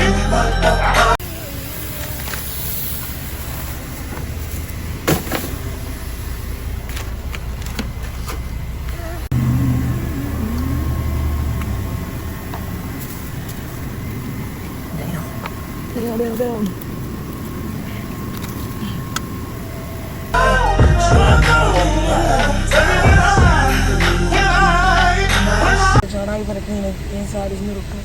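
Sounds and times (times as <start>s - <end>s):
loud low hum: 0.0s - 28.0s
steady low rumble: 0.0s - 28.0s.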